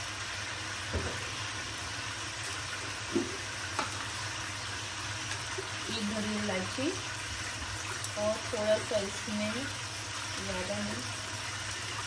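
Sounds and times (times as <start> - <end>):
chicken sizzling in oil: 0.0 - 12.0
light knocks on a wok: 0.9 - 1.3, 3.1 - 4.0.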